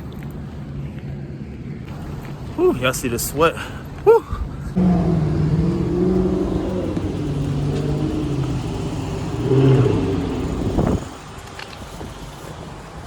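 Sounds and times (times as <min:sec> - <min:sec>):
vehicle engine accelerating: 0:04.8 - 0:11.3.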